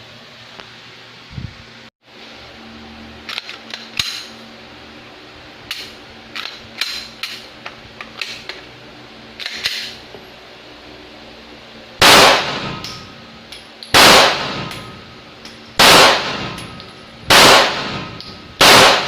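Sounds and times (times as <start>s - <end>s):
pistol metallic clicks and clacks: 5.7s - 8.6s.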